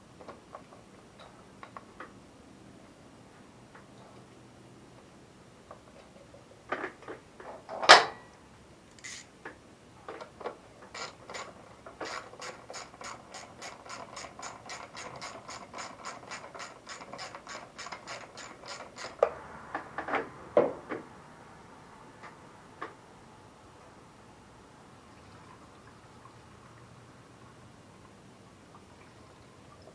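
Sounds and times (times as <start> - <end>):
sharp clunk: 7.8 - 8.3
socket ratchet clicking: 8.9 - 9.3, 11.0 - 19.2.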